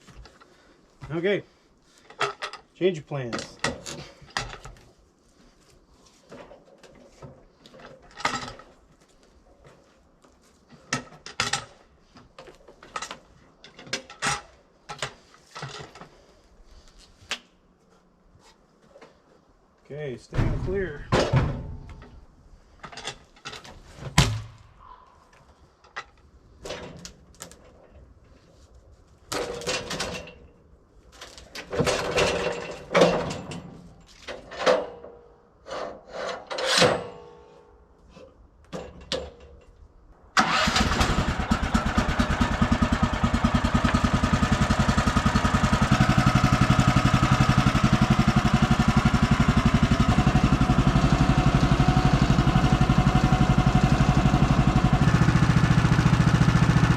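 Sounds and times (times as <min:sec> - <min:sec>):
knocks and clunks: 0:20.3 - 0:22.2
small engine starting and running: 0:40.4 - 0:56.9.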